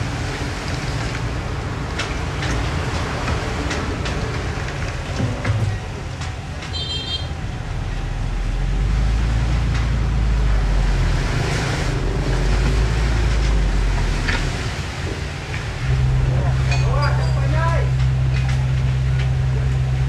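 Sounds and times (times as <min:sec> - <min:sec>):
earthmoving machinery diesel engine: 0:00.0 - 0:20.0
metal clanks: 0:15.6 - 0:19.9.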